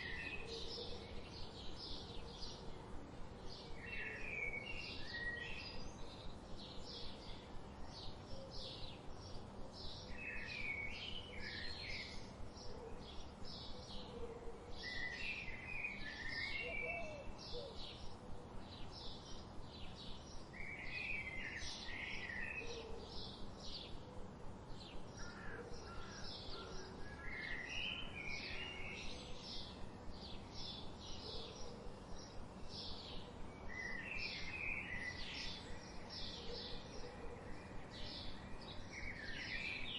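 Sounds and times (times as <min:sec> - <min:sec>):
warbled bird song: 0:00.0 - 0:39.9.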